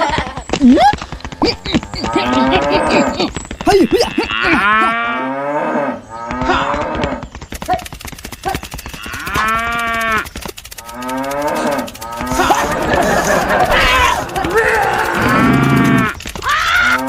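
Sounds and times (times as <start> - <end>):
clatter of clicks: 0.0 - 4.8, 6.2 - 17.0
cow mooing: 1.6 - 7.2, 8.4 - 16.2.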